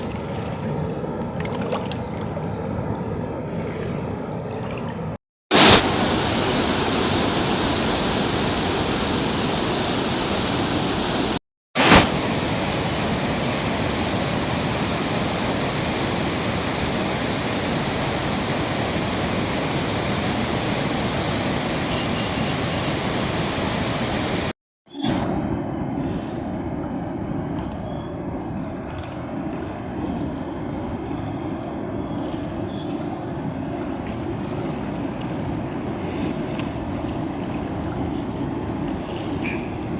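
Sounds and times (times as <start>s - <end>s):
rushing floodwater: 5.5s - 24.5s, 28.7s - 39.9s.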